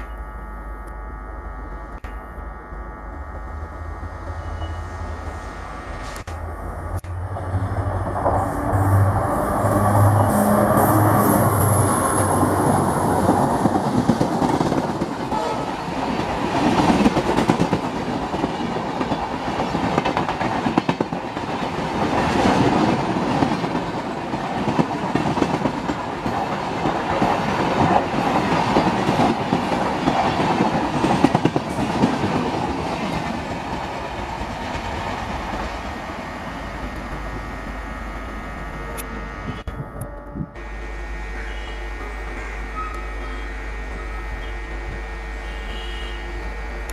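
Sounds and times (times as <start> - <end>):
train wheels clattering over rails: 11.0 - 36.1.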